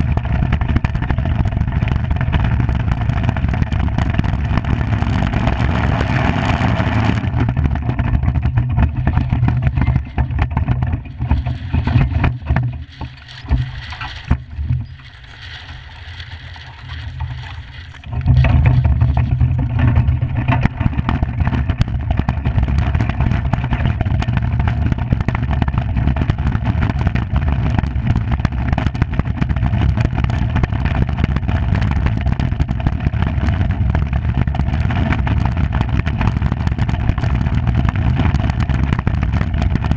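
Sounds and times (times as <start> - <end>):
iceboat runners rumbling on ice: 0.0 - 39.9
wind on microphone: 0.0 - 39.9.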